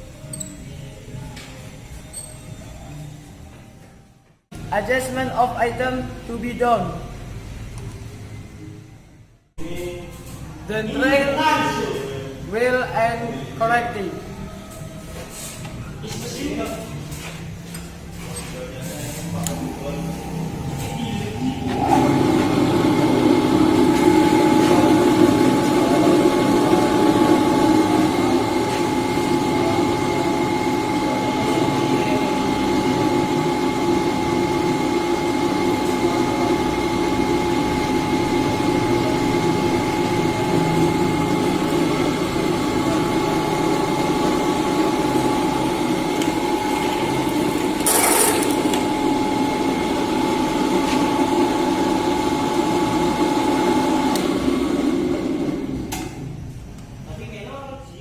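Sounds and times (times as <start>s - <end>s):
drill press motor humming: 21.6s - 56.2s.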